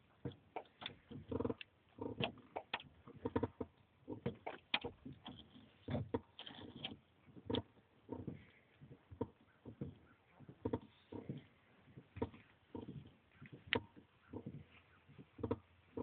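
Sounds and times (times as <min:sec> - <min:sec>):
truck pedals clunking and squeaking: 0:00.0 - 0:16.0.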